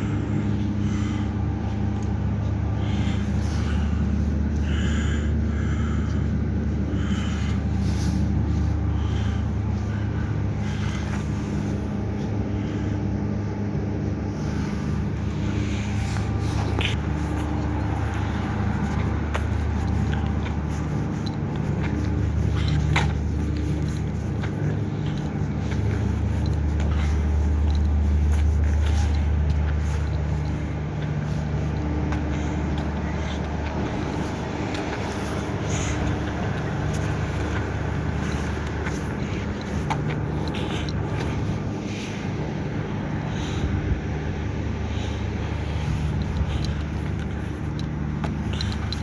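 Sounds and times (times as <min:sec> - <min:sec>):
motor droning: 0:00.0 - 0:49.0.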